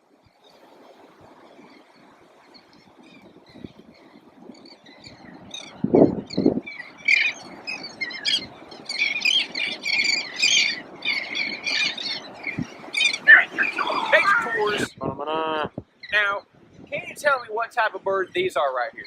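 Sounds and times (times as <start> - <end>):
seagulls squawking: 6.7 - 14.9.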